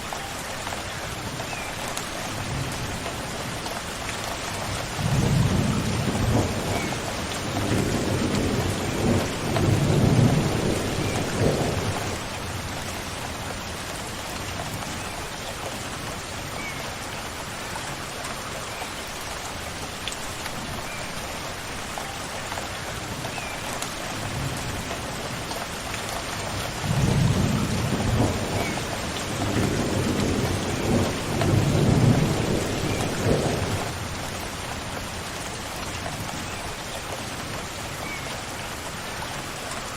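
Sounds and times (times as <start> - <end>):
steady rain falling: 0.0 - 39.9
thunder rumbling: 5.0 - 12.4, 26.8 - 34.0.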